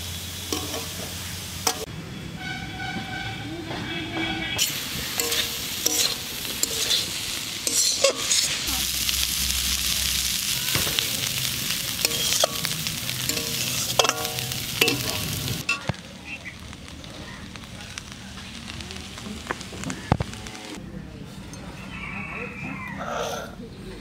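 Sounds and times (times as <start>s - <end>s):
leaves and shrimp sizzling in a wok: 0.0s - 2.5s, 4.6s - 20.8s
metal spatula scraping and clinking: 0.5s - 1.0s, 4.6s - 8.7s, 12.0s - 15.9s.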